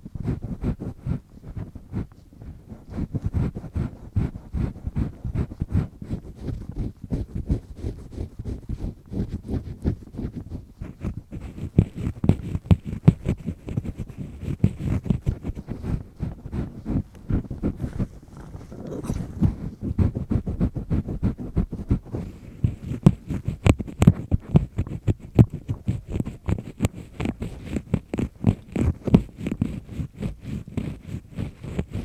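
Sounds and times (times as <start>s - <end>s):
earpick scraping in ear canal: 0.0s - 32.0s.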